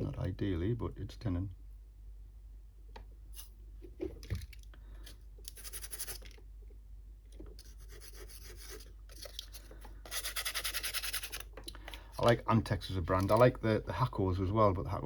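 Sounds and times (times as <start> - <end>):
scratchy rubbing strokes: 5.5 - 6.2, 7.6 - 9.3, 10.1 - 11.4.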